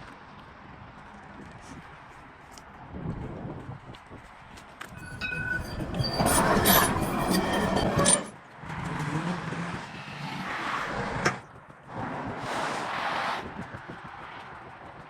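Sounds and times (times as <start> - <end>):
motor vehicles passing close: 8.4 - 15.0.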